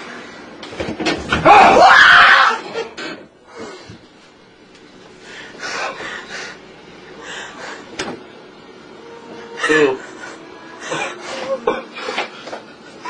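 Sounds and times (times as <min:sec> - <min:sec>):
person screaming: 0:01.4 - 0:02.6.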